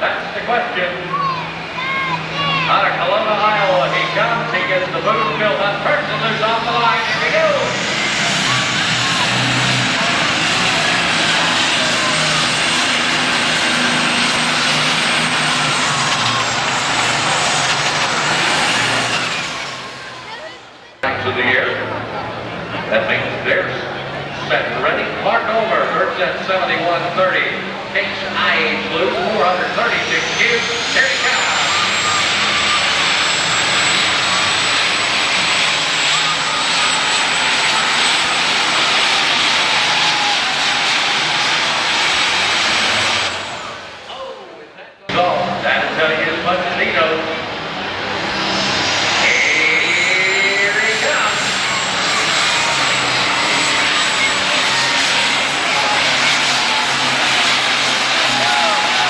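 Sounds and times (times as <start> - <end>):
diesel tractor engine under load: 0.0 - 25.3, 26.8 - 44.3, 45.2 - 59.0
high turbocharger whistle: 29.7 - 44.0, 48.2 - 59.0.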